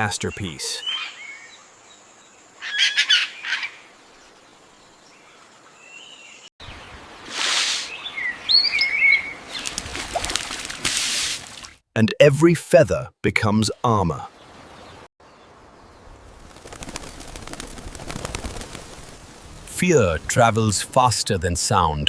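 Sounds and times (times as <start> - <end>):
birds chirping: 14.3 - 22.0
steady hiss: 16.0 - 21.7.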